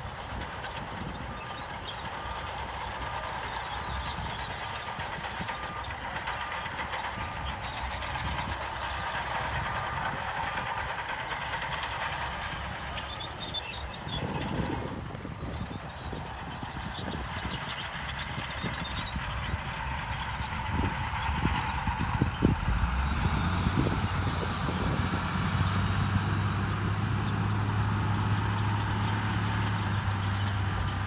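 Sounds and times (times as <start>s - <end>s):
heavy machinery diesel engine: 0.0s - 31.0s.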